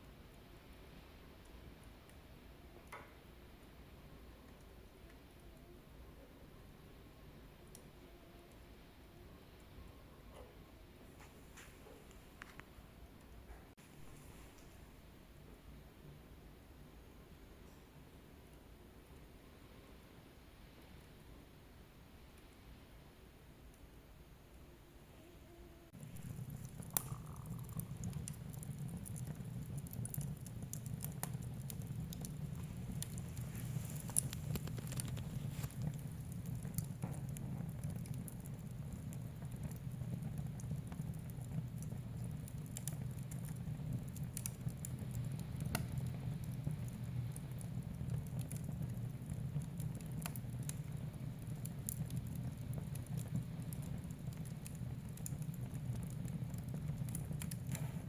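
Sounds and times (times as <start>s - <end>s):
wood fire crackling: 0.1s - 16.0s, 25.9s - 58.0s.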